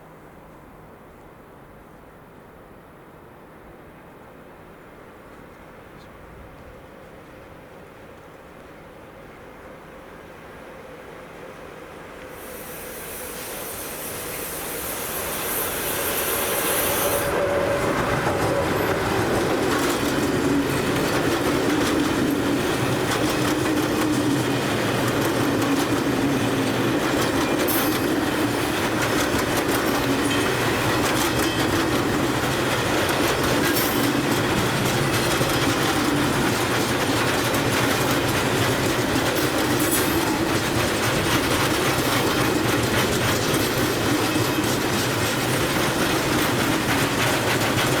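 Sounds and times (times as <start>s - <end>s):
train passing: 2.5s - 48.0s
wheels clacking over rail joints: 14.3s - 48.0s.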